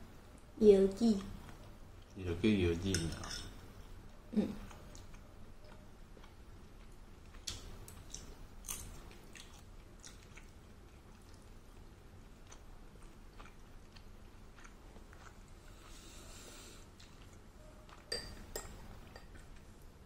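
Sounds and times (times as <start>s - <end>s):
close-up chewing and mouth sounds: 3.9s - 20.0s.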